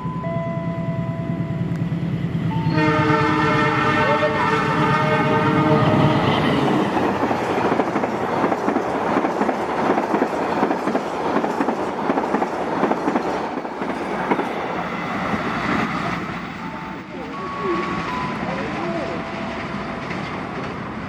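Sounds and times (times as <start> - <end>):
train wheels clattering over rail joints: 6.5 - 16.4.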